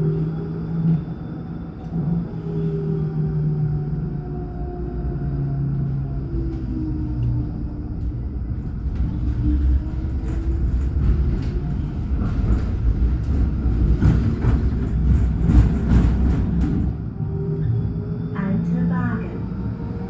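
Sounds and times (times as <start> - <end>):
tram rumbling: 0.0 - 20.0
tram clattering: 4.1 - 20.0.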